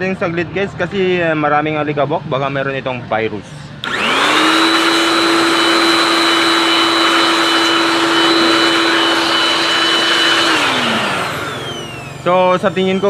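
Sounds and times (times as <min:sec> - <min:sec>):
electric air blower whining: 0:03.8 - 0:13.0.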